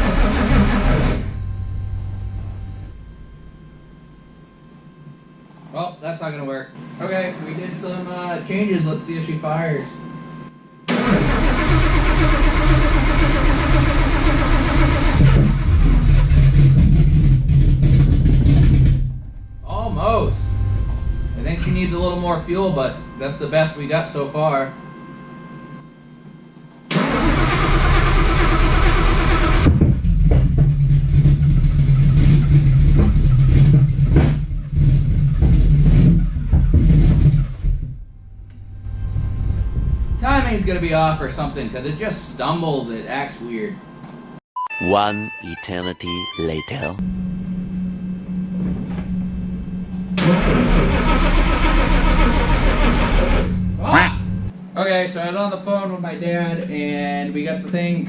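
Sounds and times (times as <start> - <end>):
engine cranking on starter: 0.0 - 1.3, 10.9 - 18.8, 26.9 - 29.7, 50.2 - 53.6
engine running roughly: 0.0 - 1.5, 10.9 - 19.2, 26.9 - 37.8, 50.2 - 54.5.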